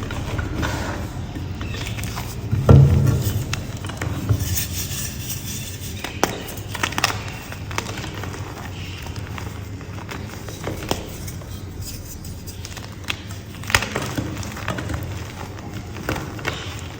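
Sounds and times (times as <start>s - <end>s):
heavy thump: 2.5s - 4.5s.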